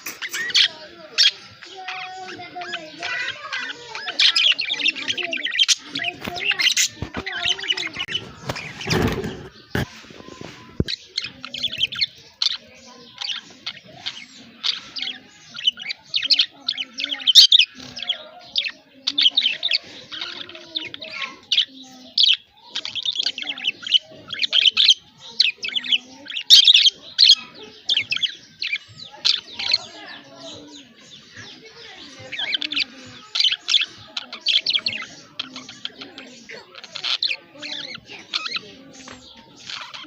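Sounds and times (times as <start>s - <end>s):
budgies chirping and warbling: 0.0s - 40.0s.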